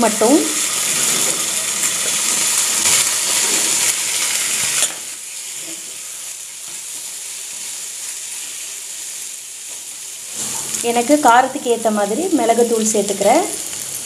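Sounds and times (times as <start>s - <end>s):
chicken sizzling in a pan: 0.0s - 14.0s
wooden spatula scraping a pan: 10.3s - 10.8s.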